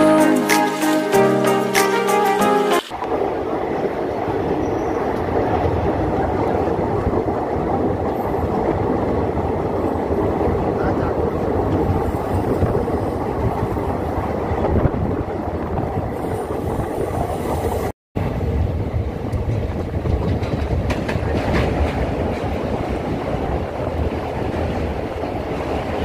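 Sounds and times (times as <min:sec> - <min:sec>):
train wheels clattering on rails: 0:18.9 - 0:26.0.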